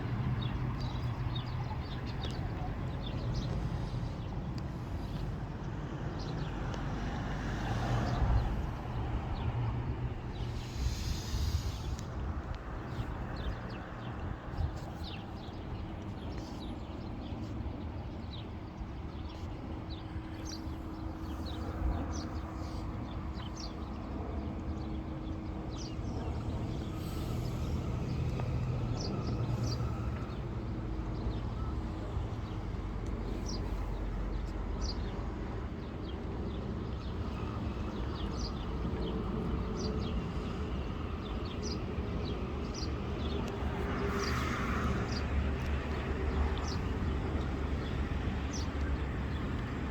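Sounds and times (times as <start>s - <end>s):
steady low rumble: 0.0s - 7.5s
small birds chirping: 36.0s - 49.8s.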